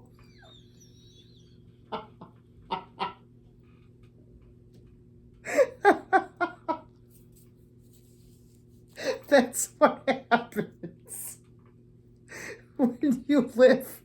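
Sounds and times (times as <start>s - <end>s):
steady low hum: 0.0s - 14.0s
woman laughing: 5.4s - 6.9s, 9.0s - 11.4s, 12.3s - 14.0s.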